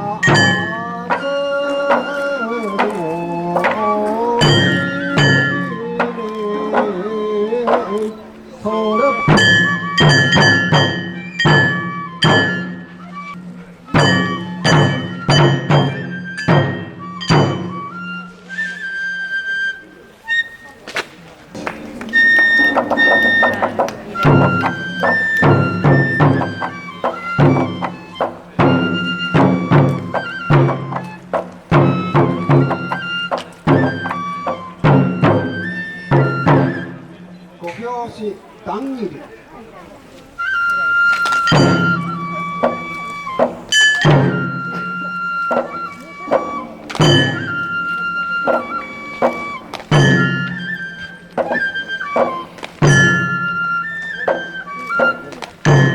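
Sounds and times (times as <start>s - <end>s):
bamboo flute melody: 0.0s - 37.6s, 39.5s - 55.9s
drum strikes: 0.1s - 8.0s, 8.6s - 17.9s, 21.5s - 37.4s, 41.4s - 55.9s
high wind instrument long notes: 21.5s - 37.2s, 40.4s - 55.9s.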